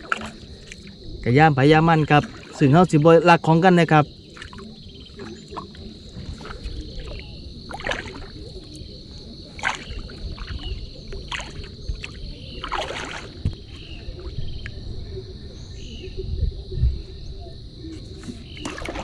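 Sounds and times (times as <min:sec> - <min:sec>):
paddle strokes splashing in water: 0:00.0 - 0:01.0, 0:01.8 - 0:14.4, 0:17.9 - 0:19.0.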